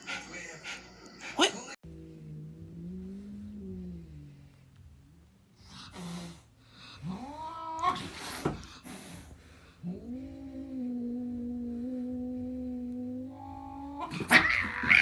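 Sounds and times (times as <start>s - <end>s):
cat yowling: 13.4s - 15.0s.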